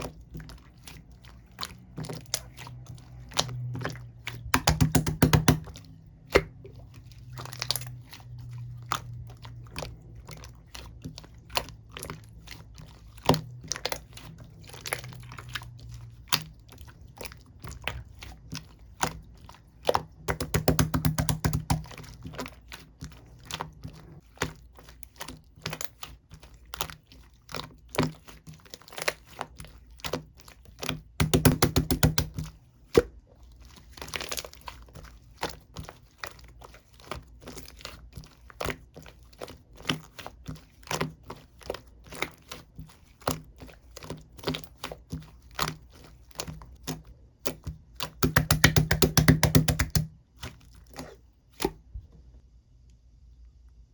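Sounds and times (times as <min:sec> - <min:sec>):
sharp clicks and taps: 0:04.6 - 0:05.7, 0:48.2 - 0:50.1.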